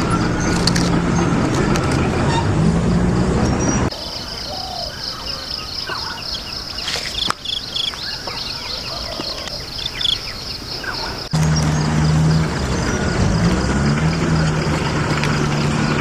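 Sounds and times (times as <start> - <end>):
insects trilling: 2.8 - 16.0
bird chirps: 3.4 - 16.0.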